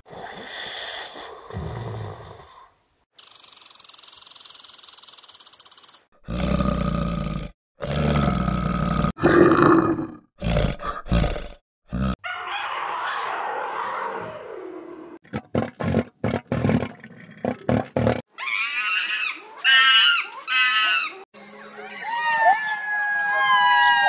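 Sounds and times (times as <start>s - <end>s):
large animal growling and roaring: 6.3s - 12.2s.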